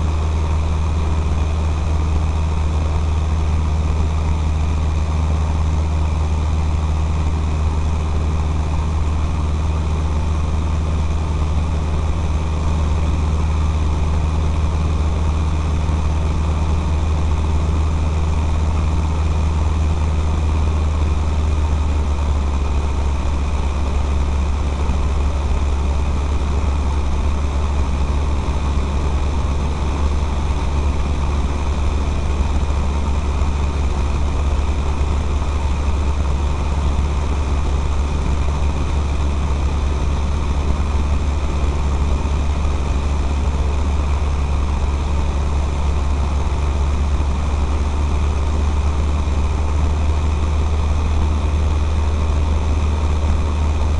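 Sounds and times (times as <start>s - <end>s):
aircraft engine and propeller droning: 0.0s - 53.9s.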